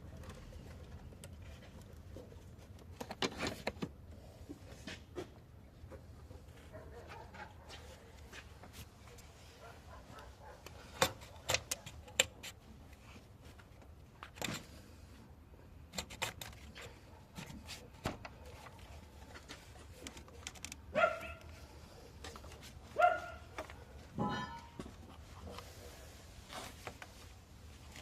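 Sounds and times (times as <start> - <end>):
dog barking: 6.7 - 8.4, 9.6 - 11.9, 20.9 - 21.5, 23.0 - 24.1.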